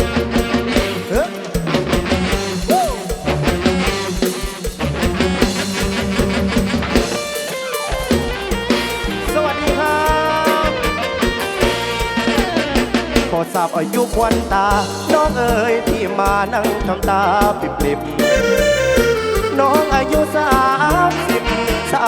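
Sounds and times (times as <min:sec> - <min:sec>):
drum kit beat: 0:18.2 - 0:20.9
electric guitar lines: 0:18.2 - 0:21.2.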